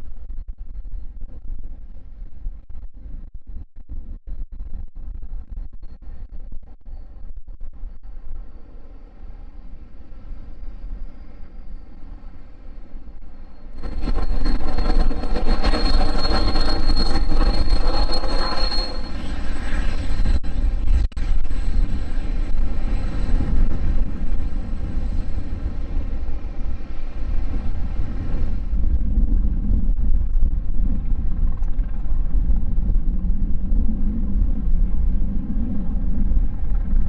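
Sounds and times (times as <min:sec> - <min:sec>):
wind rumble on microphone: 0:00.0 - 0:37.0
jet engine whine: 0:06.0 - 0:37.0
jet engine rush: 0:13.7 - 0:37.0.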